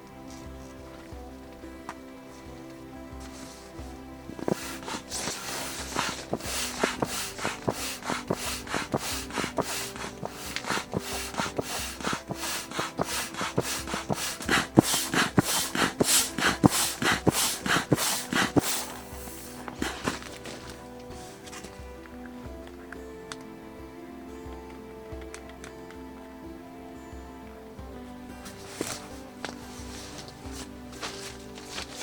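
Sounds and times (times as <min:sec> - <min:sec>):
hand saw cutting wood: 0:04.4 - 0:21.7.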